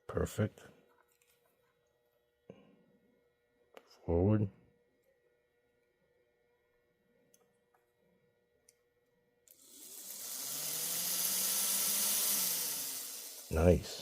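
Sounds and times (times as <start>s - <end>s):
model train motor whirring: 9.5s - 14.0s.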